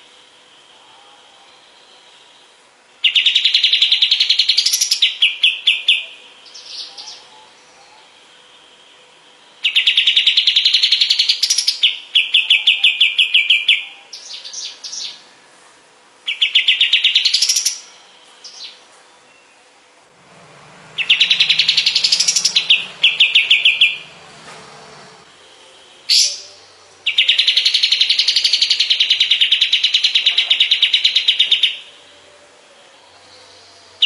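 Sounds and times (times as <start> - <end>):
songbird trilling: 3.0 - 8.2, 9.6 - 15.2, 16.2 - 19.6, 20.8 - 24.4, 26.1 - 31.9.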